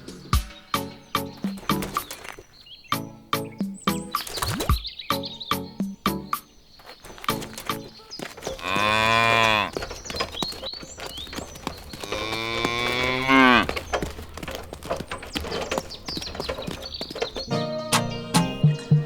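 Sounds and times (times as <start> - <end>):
birds chirping faintly: 0.0 - 19.0
cow mooing: 8.2 - 17.1.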